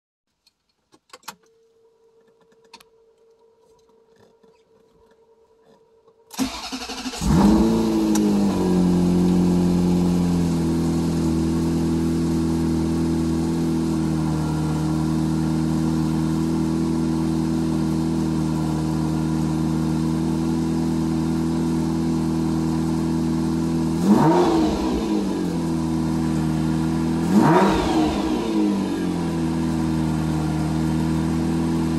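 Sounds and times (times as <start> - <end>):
car engine starting and revving: 6.3 - 31.9.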